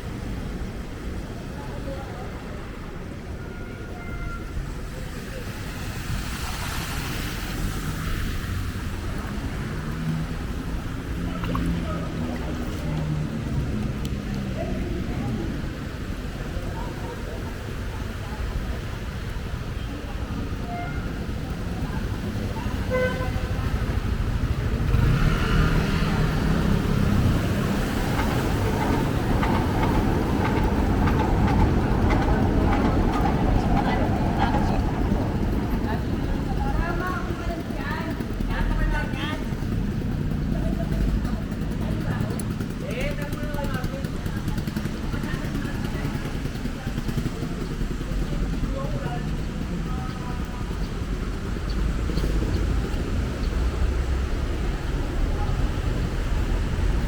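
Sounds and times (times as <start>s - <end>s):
street traffic passing: 0.0s - 57.0s
tyres swishing through water: 0.0s - 57.0s
vehicle engine rumble: 4.4s - 57.0s.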